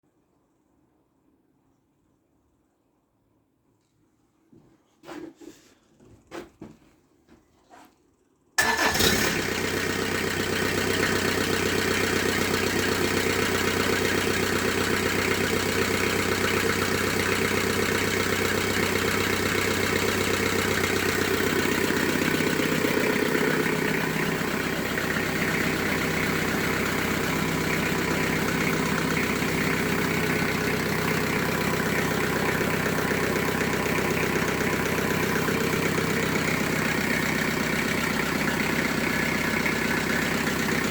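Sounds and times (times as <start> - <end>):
diesel engine starting and running: 8.6 - 40.9.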